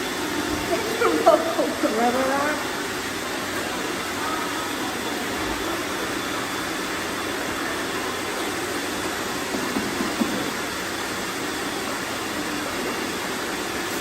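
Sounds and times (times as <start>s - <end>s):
robot vacuums whirring: 0.3s - 10.6s.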